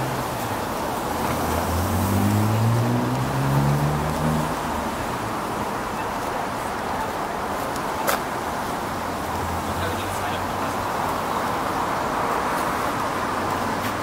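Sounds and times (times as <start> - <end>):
street noise: 0.0 - 14.0
car engine accelerating: 1.1 - 5.4.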